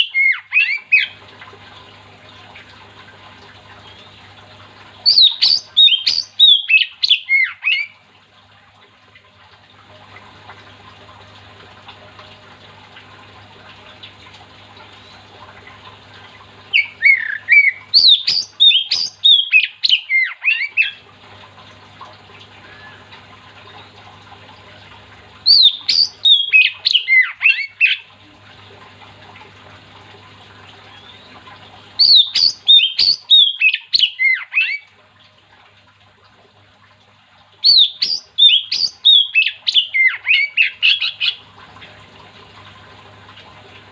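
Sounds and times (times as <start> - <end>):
low steady hum: 0.0 - 43.9
bird singing whistled phrases: 5.1 - 7.9, 16.8 - 21.0, 25.5 - 28.0, 32.0 - 34.8, 37.7 - 41.4.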